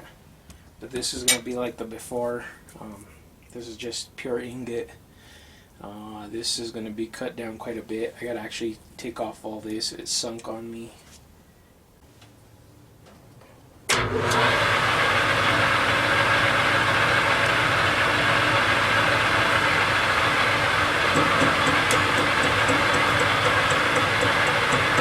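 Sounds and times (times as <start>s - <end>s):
metal lathe running: 13.9s - 25.0s.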